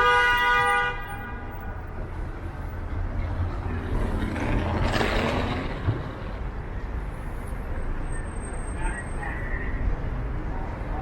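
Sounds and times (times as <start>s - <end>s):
low rumble of traffic: 0.0s - 11.0s
vehicle passing close: 3.5s - 6.6s.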